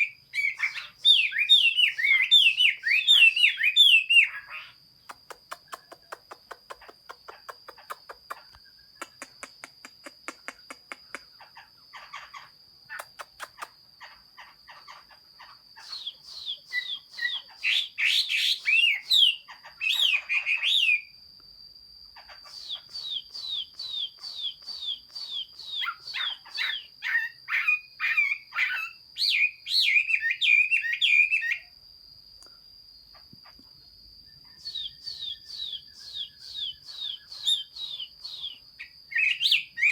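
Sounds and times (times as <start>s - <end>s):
bird singing whistled phrases: 0.0s - 4.8s, 15.8s - 21.1s, 22.4s - 31.7s, 34.3s - 39.9s
soft ticking bird notes: 0.0s - 20.6s, 22.2s - 27.4s, 32.4s - 39.9s.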